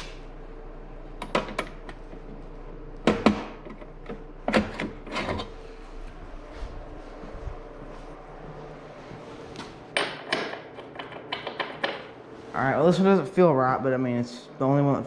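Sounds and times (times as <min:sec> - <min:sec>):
hand tools clanking and knocking: 0:03.0 - 0:05.6, 0:09.9 - 0:12.2.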